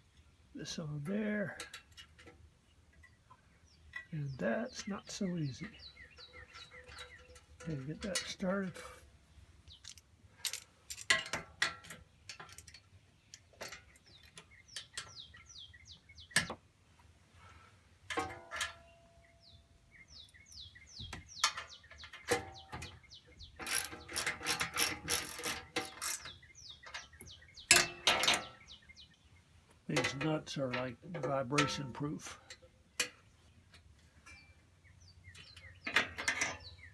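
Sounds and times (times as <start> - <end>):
birds chirping: 0.0 - 11.1, 11.8 - 17.6, 18.6 - 36.9
metallic clicks of hand tools: 9.8 - 15.1, 23.6 - 27.1
rapid clicking: 23.6 - 26.2.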